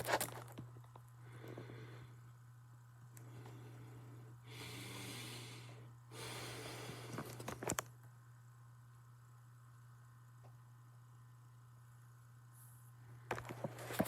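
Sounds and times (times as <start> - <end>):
steady low hum: 0.0 - 14.0
person breathing: 1.2 - 2.4, 3.2 - 7.5.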